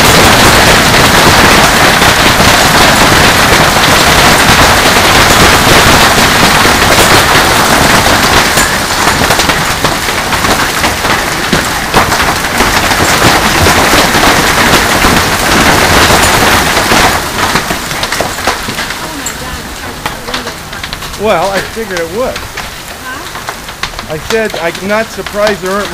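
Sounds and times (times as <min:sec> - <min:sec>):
heavy hail clattering: 0:00.0 - 0:25.9.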